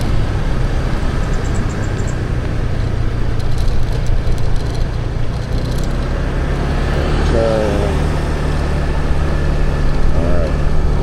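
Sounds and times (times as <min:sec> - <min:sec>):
motorbike engine: 0:00.0 - 0:11.0
road noise: 0:00.0 - 0:11.0.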